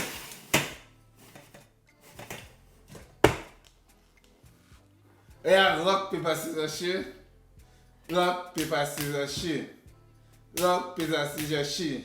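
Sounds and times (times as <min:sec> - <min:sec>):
containers knocked on a table: 0:03.2 - 0:03.6.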